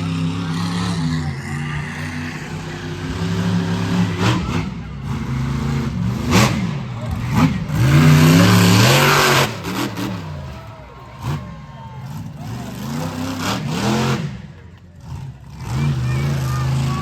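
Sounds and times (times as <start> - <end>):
monster truck engine revving: 0.0 - 17.0.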